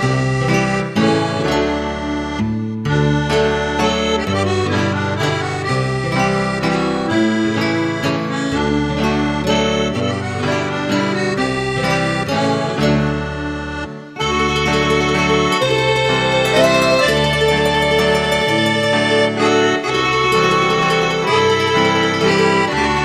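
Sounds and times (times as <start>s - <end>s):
accordion tune: 0.0s - 23.0s
bass line: 13.4s - 22.1s.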